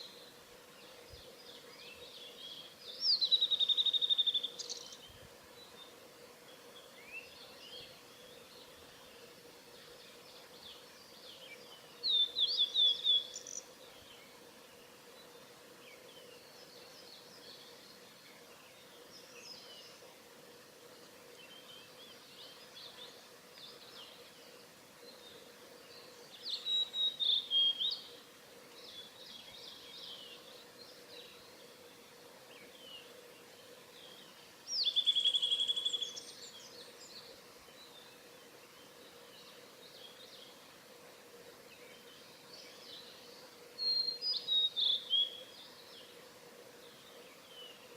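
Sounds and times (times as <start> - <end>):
faint bird song: 0.0 - 47.9
bird whistling song phrases: 12.1 - 13.6, 26.6 - 28.0, 34.8 - 36.2.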